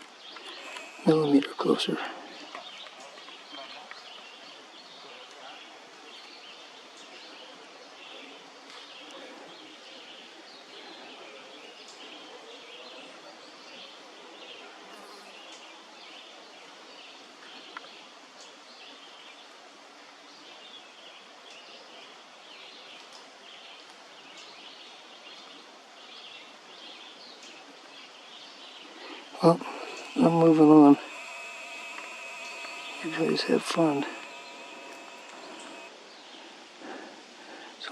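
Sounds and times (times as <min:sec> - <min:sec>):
small high chirps: 0:29.4 - 0:35.9.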